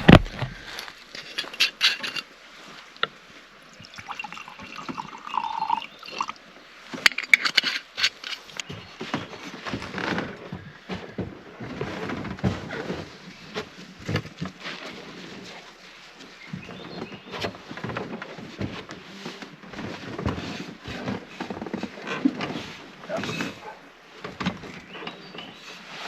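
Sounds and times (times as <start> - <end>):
bottle and glass clinking: 3.8 - 6.4
whisky pouring into a glass: 3.8 - 6.4.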